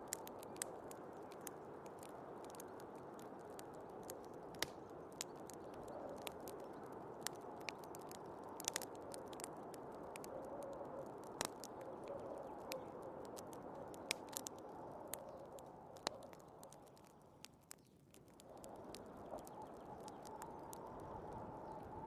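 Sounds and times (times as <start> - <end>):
wood fire crackling and popping: 0.0 - 22.0
rushing wind: 18.4 - 22.0.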